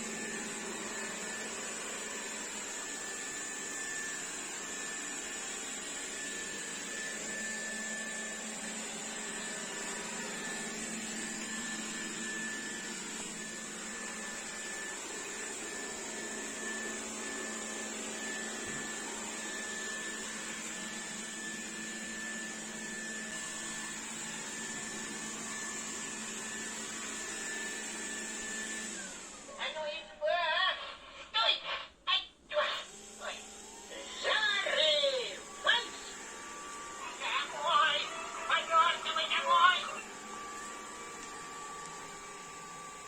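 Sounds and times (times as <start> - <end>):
robot vacuum running: 0.0 - 29.9, 32.6 - 43.0.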